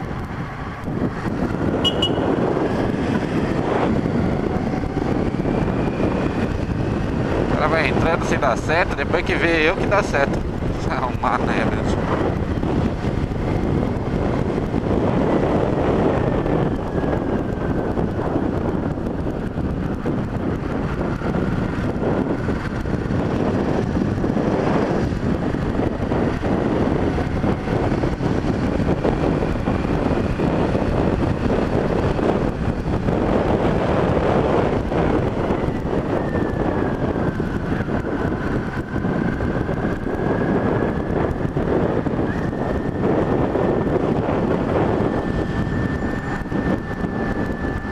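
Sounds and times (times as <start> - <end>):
motorcycle engine and road noise: 0.0 - 47.9
wind buffeting microphone: 0.0 - 47.9.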